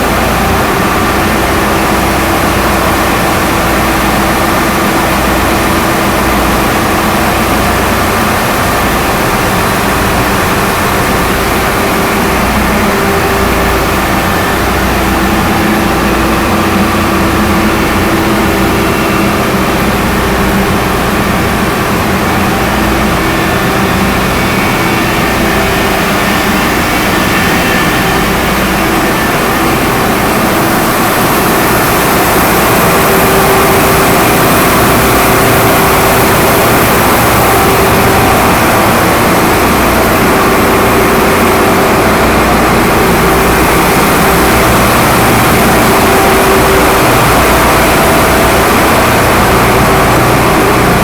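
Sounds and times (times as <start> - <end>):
engine room machinery drone: 0.0 - 51.0.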